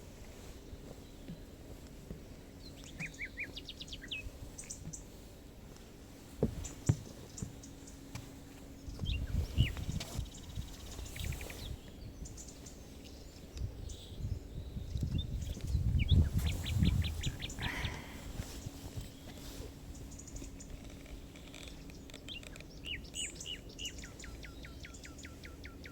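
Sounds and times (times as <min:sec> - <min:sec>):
faint low hum: 0:00.0 - 0:25.9
songbirds chirping and trilling: 0:00.0 - 0:25.9
soft low thumps and clicks: 0:05.7 - 0:10.8.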